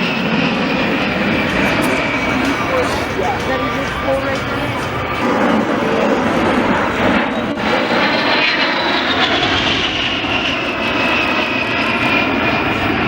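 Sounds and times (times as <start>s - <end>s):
jet engines roaring in flyby: 0.0s - 13.0s.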